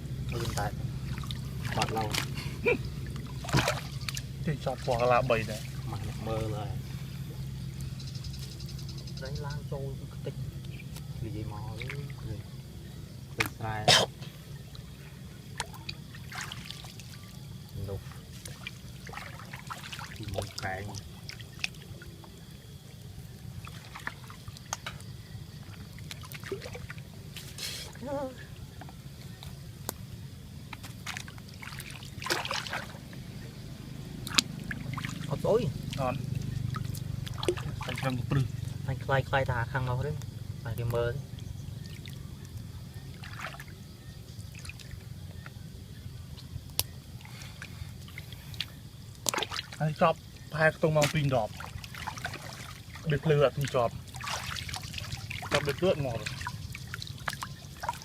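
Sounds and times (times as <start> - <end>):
low steady rumble: 0.0 - 49.2
water dripping and trickling: 0.2 - 45.6, 46.3 - 58.0
small splashes and clicks: 0.3 - 6.6, 11.7 - 12.4, 13.4 - 14.9, 15.5 - 27.6, 30.7 - 33.2, 34.2 - 38.8, 40.1 - 43.8, 44.5 - 45.6, 46.3 - 58.0.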